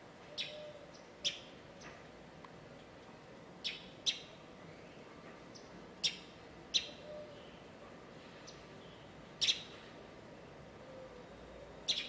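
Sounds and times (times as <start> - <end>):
small bird chirping: 0.4 - 1.9, 3.6 - 4.3, 5.5 - 7.1, 8.4 - 9.7.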